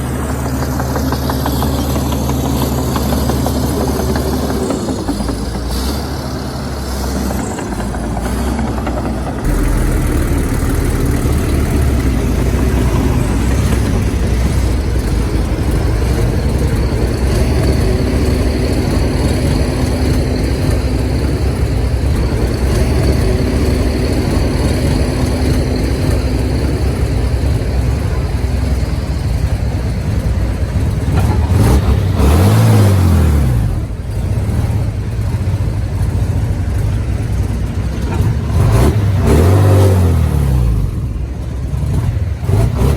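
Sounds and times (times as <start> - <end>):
bulldozer diesel engine running: 0.0 - 42.9.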